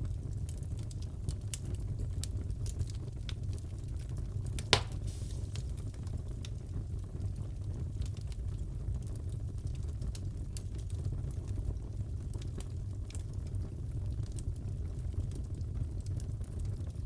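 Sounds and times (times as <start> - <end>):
wood fire crackling: 0.0 - 17.0
fire popping: 1.6 - 7.5.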